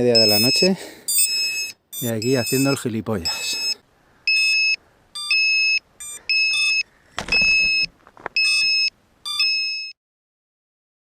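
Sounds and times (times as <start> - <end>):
electronic buzzer beeping: 0.2 - 2.8, 3.4 - 9.9
handling rustle: 6.6 - 8.8.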